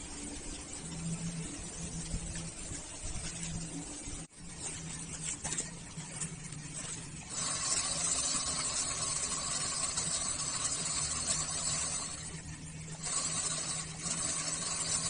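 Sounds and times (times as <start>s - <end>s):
rc car motor whine: 6.5s - 15.0s.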